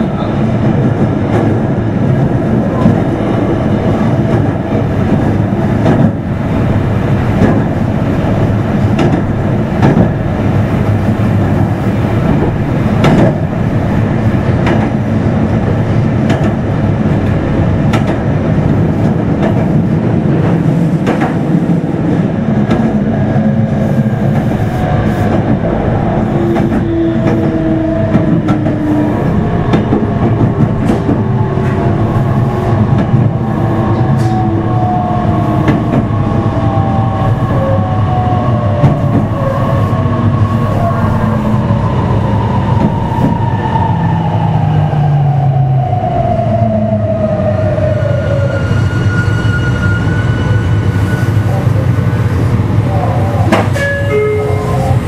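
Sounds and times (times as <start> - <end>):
train wheels rumbling on track: 0.0 - 55.0
rail-joint clicks: 4.2 - 6.2, 7.3 - 7.8, 8.8 - 10.2, 12.2 - 13.5, 14.5 - 18.3, 19.0 - 19.8, 20.4 - 21.4, 22.6 - 23.0, 26.3 - 33.3, 53.4 - 55.0.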